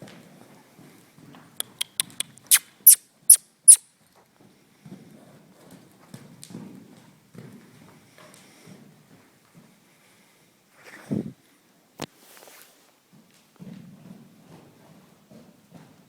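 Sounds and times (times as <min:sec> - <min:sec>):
person clicking tongue: 0:01.6 - 0:03.0
squeaky kissing smacks: 0:01.6 - 0:03.8.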